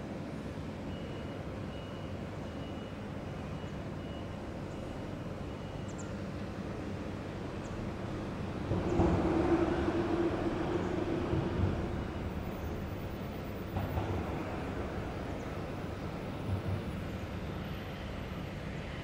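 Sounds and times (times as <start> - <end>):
distant freight train rumble: 0.1 - 19.0
faint high beep: 0.9 - 6.2.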